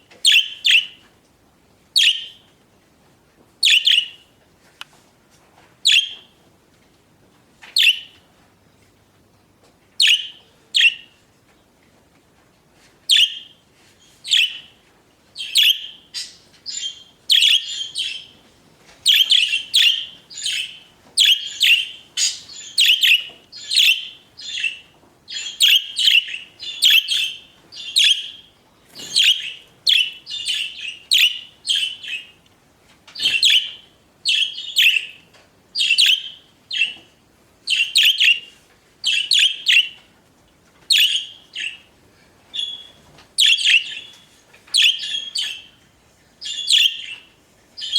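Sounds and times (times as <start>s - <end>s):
budgerigars chirping: 0.3s - 0.9s, 15.4s - 18.3s, 19.1s - 32.3s, 33.2s - 35.2s, 35.8s - 37.0s, 37.7s - 38.5s, 39.1s - 40.0s, 40.9s - 41.8s, 42.6s - 44.2s, 44.8s - 45.7s, 46.4s - 47.2s.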